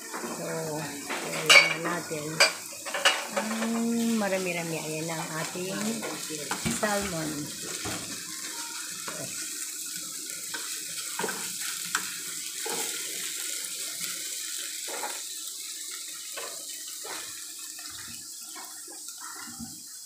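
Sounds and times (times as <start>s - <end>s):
fish sizzling in a pan: 0.0s - 20.0s
wooden spatula scraping and tapping: 10.5s - 13.0s.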